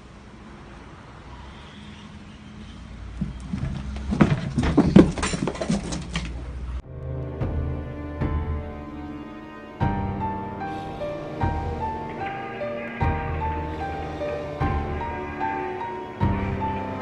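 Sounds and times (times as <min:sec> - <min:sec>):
soft music: 0:06.8 - 0:17.0
pet animal vocal sounds: 0:10.7 - 0:17.0.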